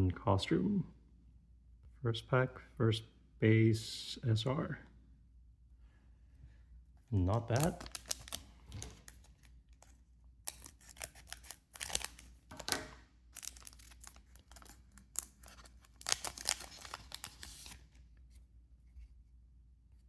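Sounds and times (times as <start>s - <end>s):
foil wrapper crackling and tearing: 7.3s - 17.9s.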